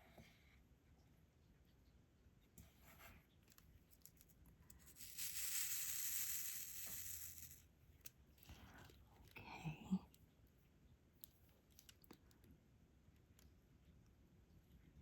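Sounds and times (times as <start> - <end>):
high rustling hiss: 4.7 - 7.6.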